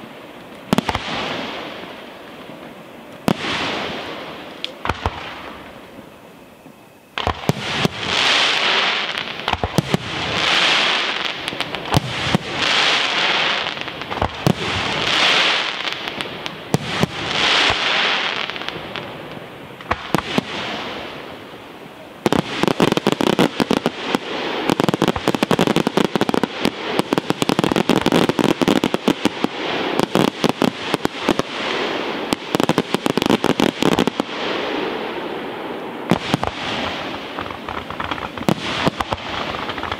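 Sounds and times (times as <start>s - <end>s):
rapid firework crackle: 0.0s - 39.9s
firework shells bursting: 36.1s - 39.9s.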